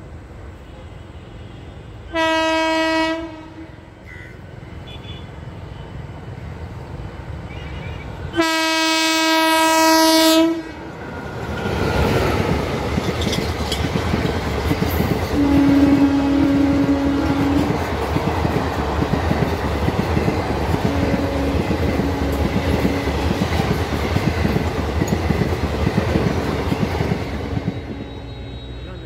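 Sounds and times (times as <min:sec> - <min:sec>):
train passing with rumble and clatter: 0:00.0 - 0:29.0
train horn blasts: 0:00.6 - 0:05.3, 0:08.3 - 0:11.0, 0:15.3 - 0:18.0, 0:20.7 - 0:23.8, 0:26.8 - 0:29.0.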